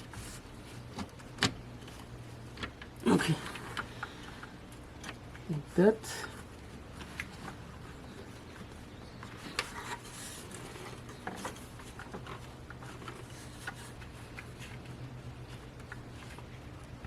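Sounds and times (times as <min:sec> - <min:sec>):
steady low hum: 0:00.0 - 0:17.0
hands clicking and tapping parts: 0:00.9 - 0:02.9.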